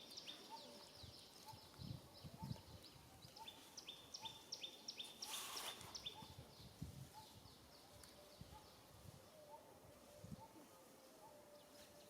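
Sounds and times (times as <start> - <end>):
bird chirping: 0.0 - 6.4.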